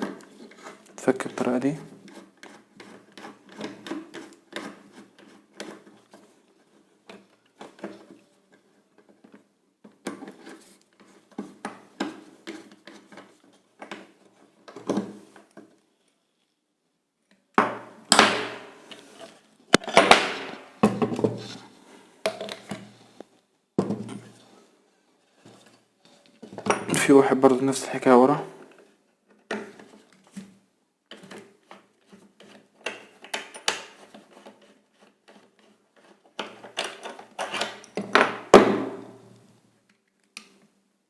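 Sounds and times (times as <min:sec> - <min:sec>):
hand tools clicking and scraping: 0:00.0 - 0:08.2, 0:31.2 - 0:38.2.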